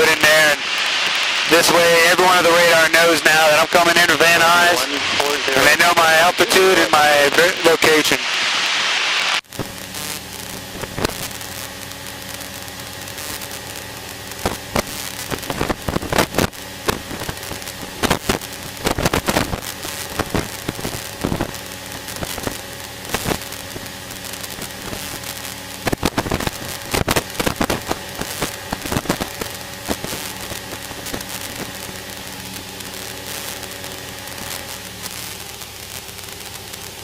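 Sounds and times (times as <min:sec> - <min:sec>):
sharp crackling clicks: 0:08.2 - 0:37.0.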